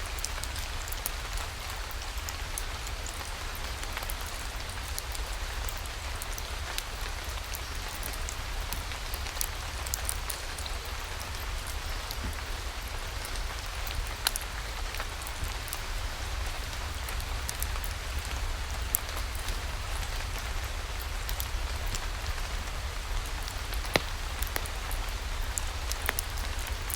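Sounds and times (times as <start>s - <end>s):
rainfall hiss: 0.0s - 26.9s
sharp raindrops clicking: 0.1s - 26.9s.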